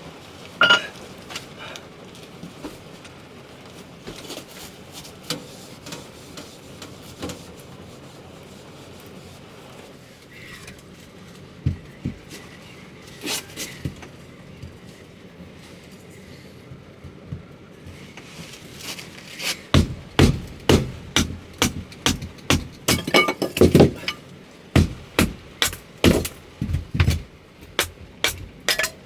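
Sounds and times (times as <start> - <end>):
rustling scrape: 18.0 - 29.0
handling clicks and knocks: 19.7 - 29.0
low thumps: 19.8 - 24.2, 24.8 - 29.0.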